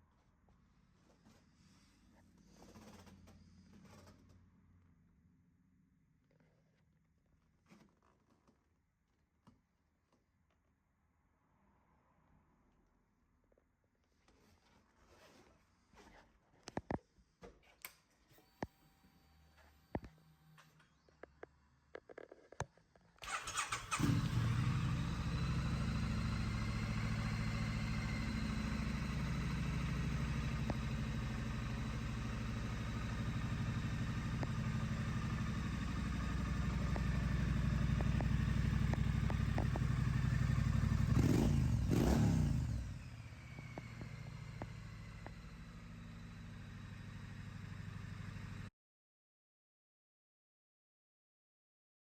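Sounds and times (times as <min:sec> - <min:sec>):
motorcycle engine starting and idling: 0:23.2 - 0:48.7.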